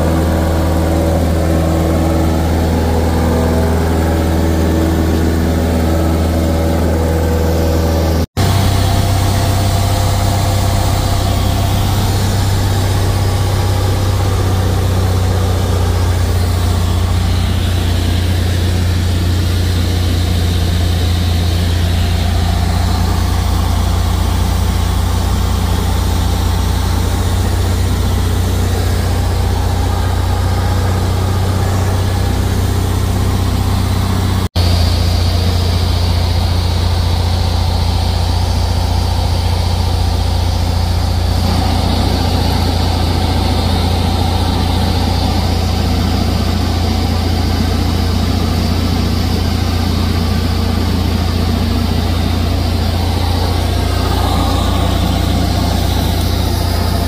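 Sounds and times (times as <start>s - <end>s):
airplane engine droning: 0.0s - 57.0s
rush of air: 50.5s - 57.0s.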